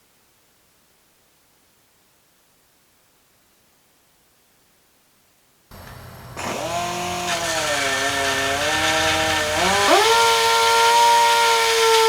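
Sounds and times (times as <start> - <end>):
power grinder grinding metal: 5.7 - 12.0.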